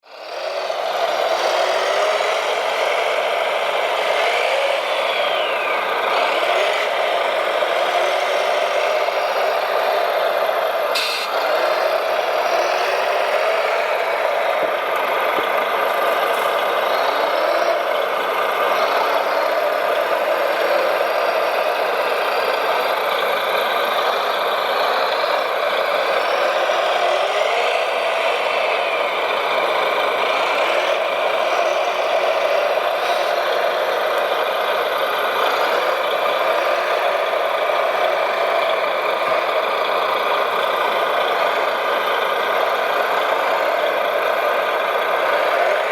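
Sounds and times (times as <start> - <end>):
engine idling: 0.1 - 45.9
motor whines: 3.9 - 7.2.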